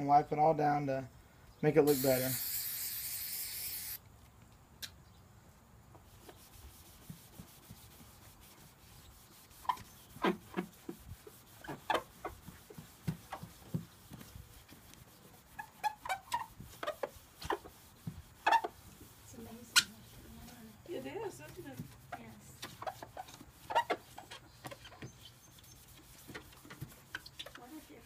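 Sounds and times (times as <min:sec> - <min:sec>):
cloth rubbing plastic: 0:06.3 - 0:28.0.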